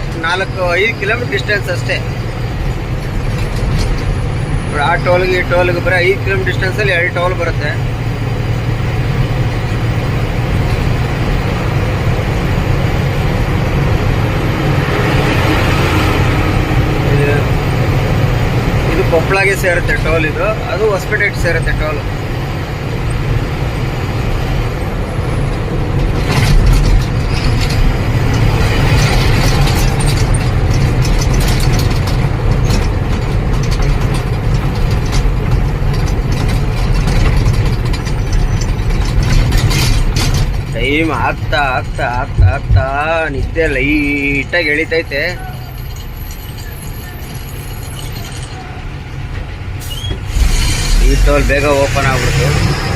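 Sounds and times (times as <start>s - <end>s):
road noise: 0.0s - 52.9s
truck engine drone: 0.0s - 52.9s.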